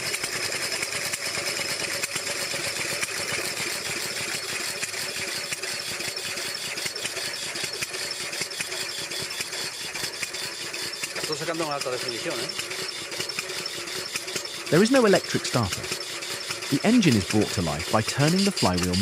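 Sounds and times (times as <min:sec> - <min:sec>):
gasoline engine ticking: 0:11.1 - 0:19.0.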